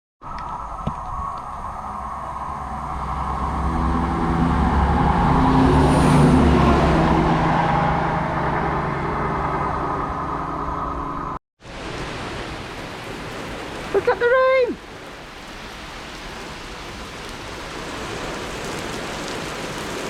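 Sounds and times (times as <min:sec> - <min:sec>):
train passing: 0:00.5 - 0:11.4.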